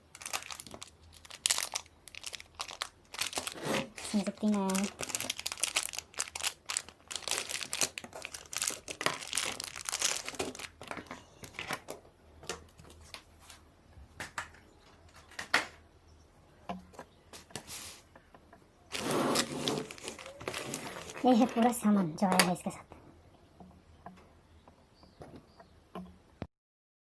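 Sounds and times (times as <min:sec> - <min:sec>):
packaging crinkling and rustling: 0:00.0 - 0:13.6, 0:18.9 - 0:22.5.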